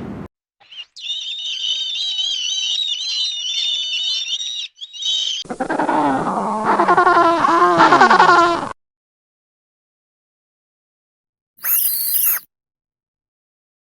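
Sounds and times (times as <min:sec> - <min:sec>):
bird twittering: 0:00.6 - 0:05.4, 0:11.6 - 0:12.4
animal drawn-out calls: 0:11.6 - 0:12.4.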